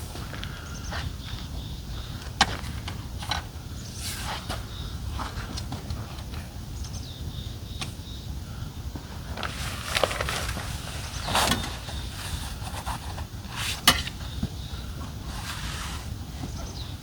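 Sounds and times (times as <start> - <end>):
wind rumble on microphone: 0.0 - 17.0
handling knocks and rustles: 9.0 - 16.9.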